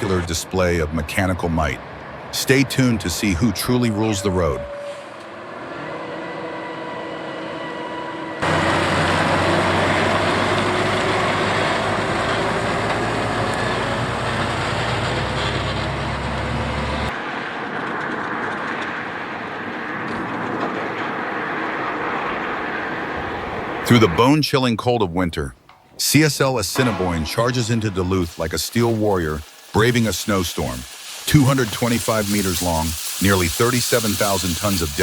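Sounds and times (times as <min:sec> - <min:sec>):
road noise: 0:00.0 - 0:35.0
heavy truck diesel engines: 0:08.4 - 0:17.1.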